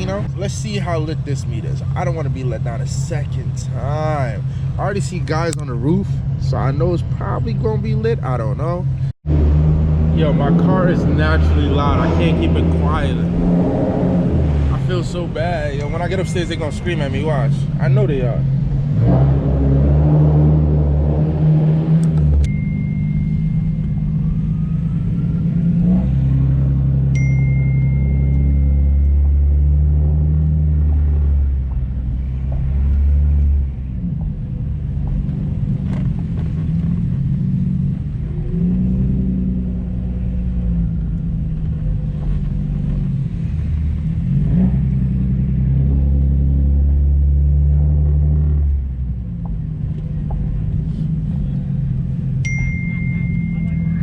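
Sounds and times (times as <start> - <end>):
car engine and exhaust revving: 0.0 - 54.0
faint high beep: 15.7 - 17.1, 22.4 - 24.7, 27.2 - 29.5, 52.4 - 54.0.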